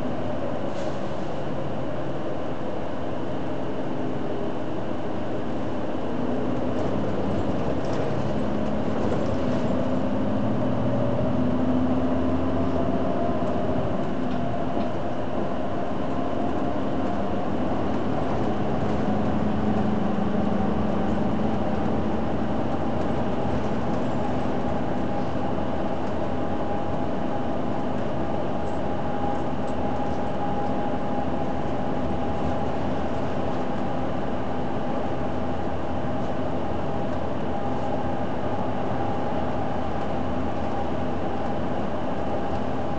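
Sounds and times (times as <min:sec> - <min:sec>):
bus drivetrain humming and whining: 0:00.0 - 0:42.9
road noise: 0:06.1 - 0:34.3.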